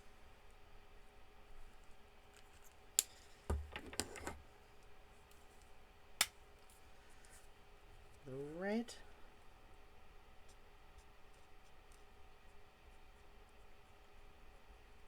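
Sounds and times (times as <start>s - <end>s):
markers handled on a desk: 3.5s - 4.4s.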